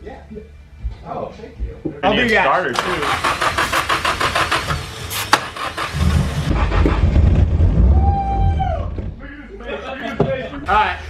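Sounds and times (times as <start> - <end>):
engine cranking with starter: 2.8 - 7.2.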